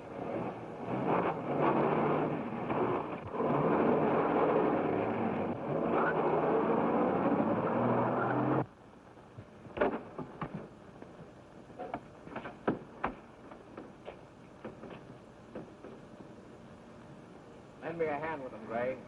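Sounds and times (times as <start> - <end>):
engine running: 0.0 - 8.7.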